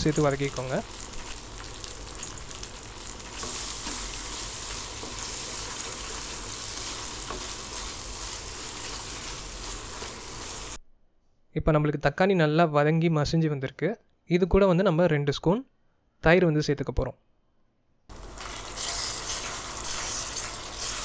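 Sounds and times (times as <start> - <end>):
vegetables sizzling in oil: 0.0 - 10.8, 18.1 - 21.0.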